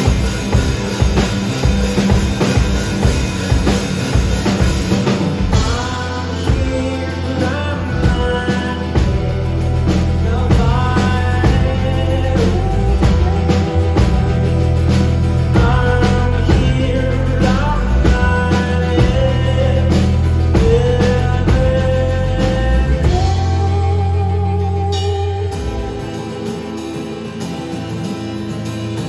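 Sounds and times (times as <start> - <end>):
live rock band playing: 0.0 - 29.0
man singing: 4.5 - 27.6.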